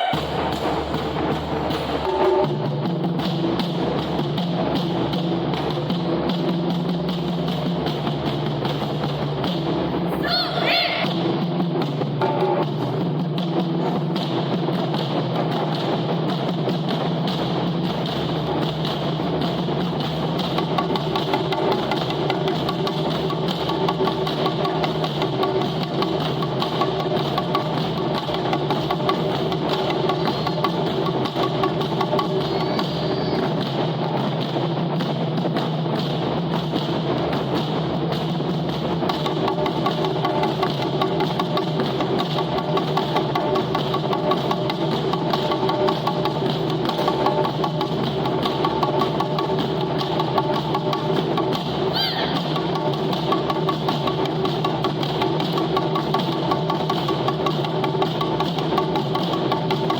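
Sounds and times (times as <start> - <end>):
taiko drums playing fast rhythm: 0.0 - 59.9
high rising and falling call: 10.1 - 11.1
drumming with wood clicks: 37.6 - 59.9.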